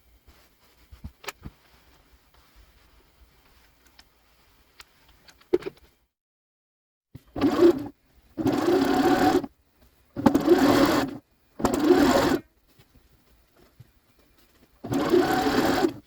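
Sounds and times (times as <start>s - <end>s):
sewing machine stitching: 7.3s - 9.5s, 10.2s - 12.5s, 14.8s - 16.0s.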